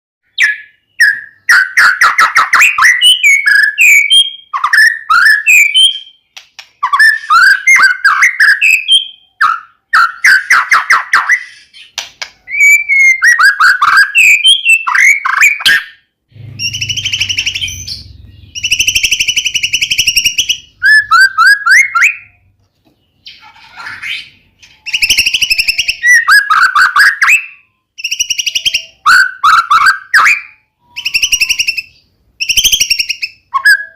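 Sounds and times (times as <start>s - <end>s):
bird whistling song: 0.3s - 33.9s
harsh buzzy rattling bird calls: 16.4s - 22.0s.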